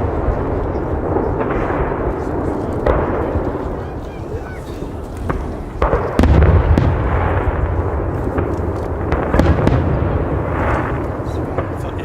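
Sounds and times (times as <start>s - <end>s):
fireworks bangs: 0.0s - 12.0s
low rumble of explosions: 0.0s - 12.0s.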